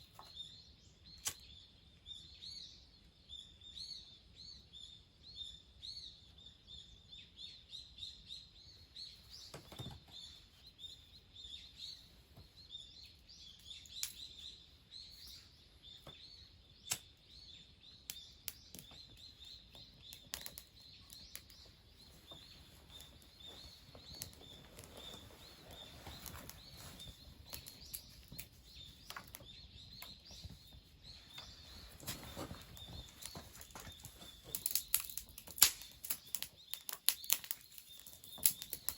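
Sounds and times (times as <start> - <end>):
bird chirps: 0.0 - 38.9
sharp clicks: 34.5 - 38.9.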